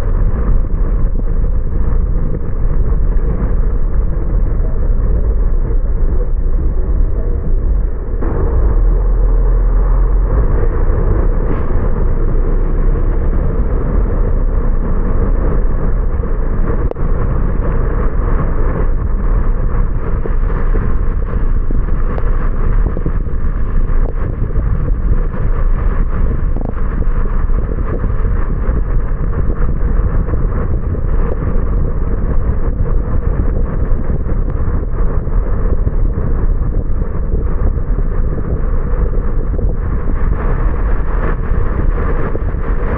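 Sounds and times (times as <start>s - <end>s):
low rumble: 0.0s - 42.9s.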